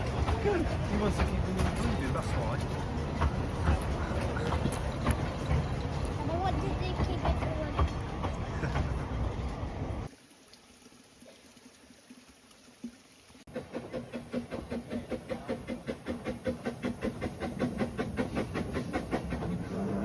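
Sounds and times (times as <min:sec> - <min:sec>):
steam train chuffing: 0:00.0 - 0:10.1, 0:13.5 - 0:20.0.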